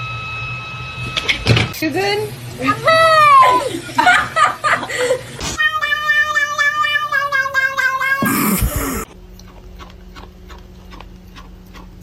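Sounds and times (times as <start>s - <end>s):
cat meowing: 5.6s - 9.0s.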